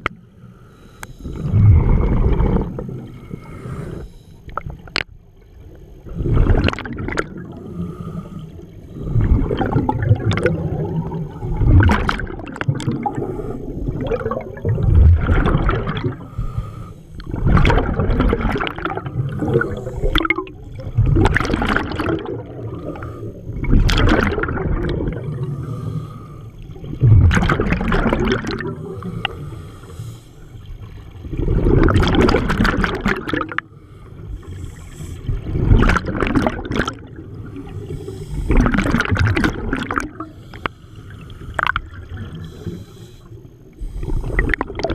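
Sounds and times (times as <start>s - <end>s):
scuba exhaled bubbles gurgling: 1.0s - 44.9s
regulator inhalation: 16.2s - 17.2s, 25.4s - 26.6s, 28.7s - 30.6s, 33.7s - 35.3s, 37.4s - 38.7s, 40.2s - 44.7s.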